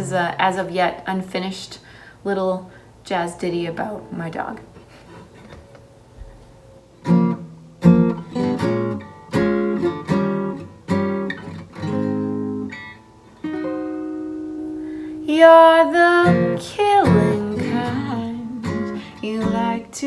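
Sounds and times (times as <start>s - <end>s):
acoustic guitar strumming chords: 7.0s - 20.0s.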